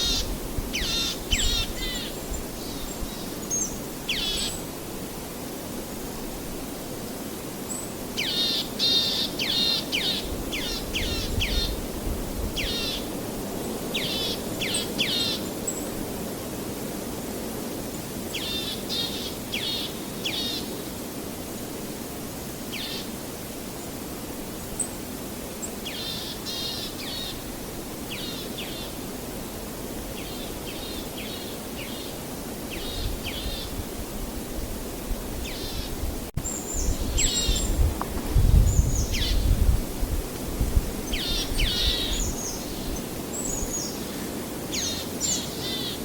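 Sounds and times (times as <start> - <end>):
small birds chirping: 35.4 - 37.9, 38.5 - 39.6, 41.0 - 46.0.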